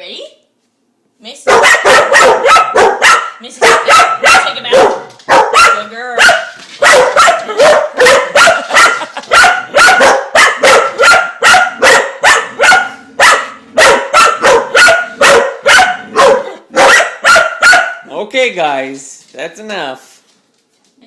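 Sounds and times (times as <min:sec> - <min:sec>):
dog barking rapidly: 0:01.4 - 0:18.1.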